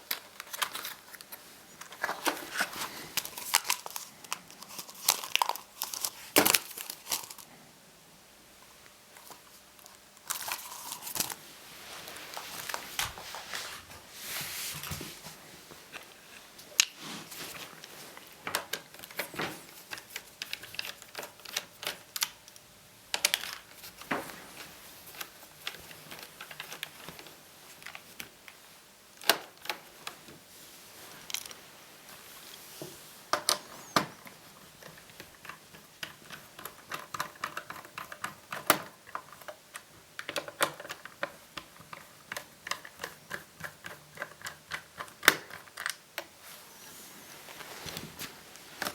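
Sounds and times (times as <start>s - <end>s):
plastic parts clicking: 0.0s - 7.5s, 18.5s - 24.2s, 25.1s - 28.3s, 33.3s - 46.3s
plastic rustling and scraping: 0.0s - 7.6s, 9.1s - 22.3s, 23.1s - 48.9s.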